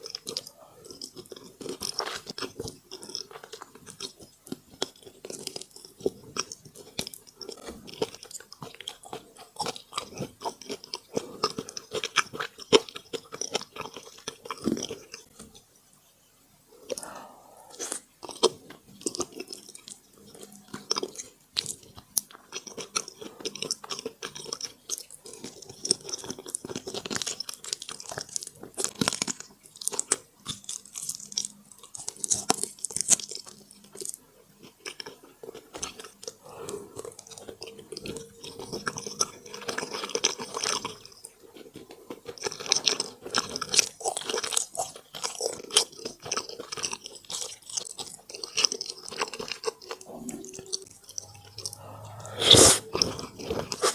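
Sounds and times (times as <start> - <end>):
close chewing and biting: 0.0 - 15.6, 16.8 - 53.9.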